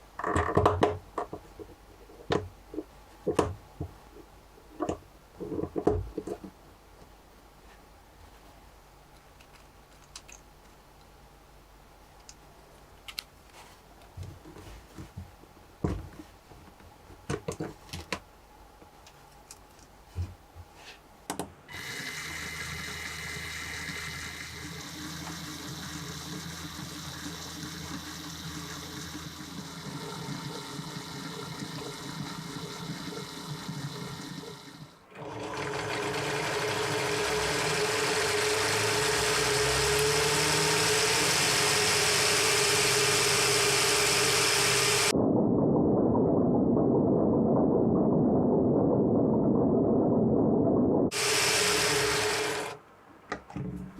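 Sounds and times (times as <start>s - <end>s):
plastic parts clicking together: 9.2s - 11.1s, 13.0s - 13.4s
motor whirring and clattering: 21.7s - 45.1s, 51.1s - 52.8s.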